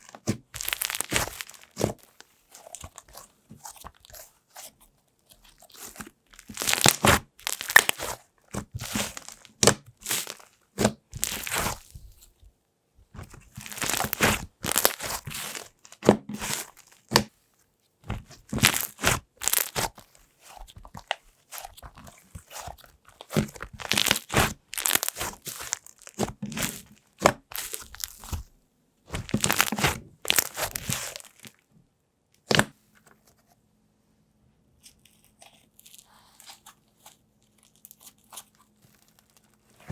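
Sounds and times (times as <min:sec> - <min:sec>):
slime squishing and popping: 0:00.0 - 0:04.1, 0:05.8 - 0:12.0, 0:13.2 - 0:17.3, 0:18.1 - 0:28.5, 0:29.1 - 0:31.6, 0:32.4 - 0:32.8.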